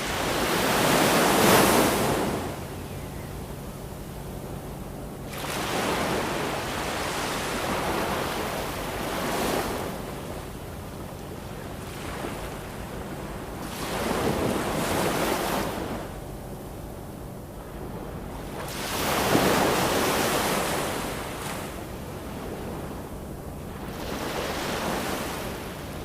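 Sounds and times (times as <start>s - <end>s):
ocean waves breaking: 0.0s - 2.8s, 3.5s - 26.0s
surf washing: 0.0s - 2.8s, 5.2s - 16.2s, 17.6s - 26.0s.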